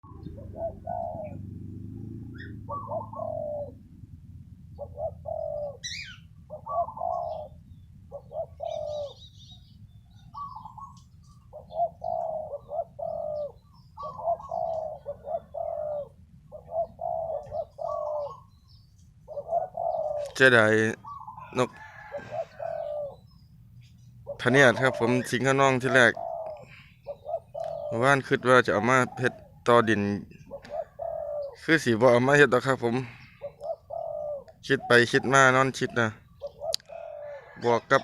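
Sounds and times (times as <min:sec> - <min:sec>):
low background rumble: 0:00.0 - 0:20.2
doves cooing: 0:00.0 - 0:38.0
faint bird chirps: 0:04.7 - 0:38.0.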